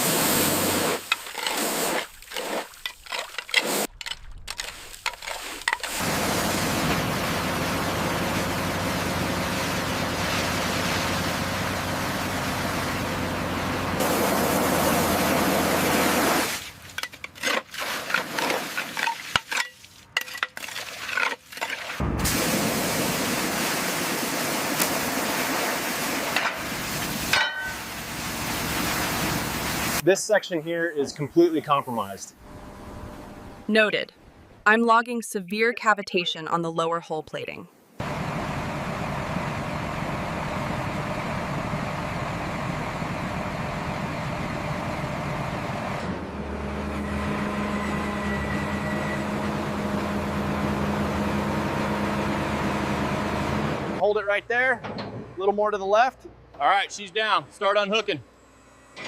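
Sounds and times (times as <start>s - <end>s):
high-pressure spray hissing: 0.0s - 2.1s, 22.2s - 30.0s
heavy machinery rumbling: 5.7s - 16.2s, 38.0s - 56.6s
engine-like hum with held tones: 5.8s - 16.5s, 32.3s - 34.6s, 38.0s - 59.0s.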